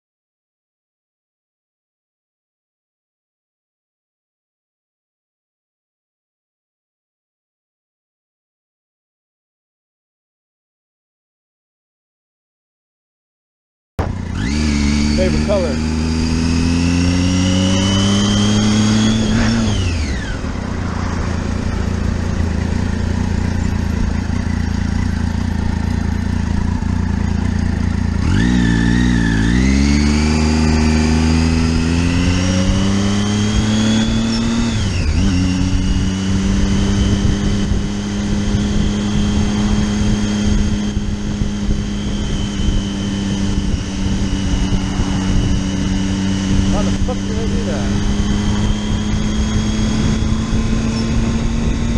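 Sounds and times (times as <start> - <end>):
motorcycle engine revving: 14.0 - 51.9
wind and road noise: 14.0 - 51.9.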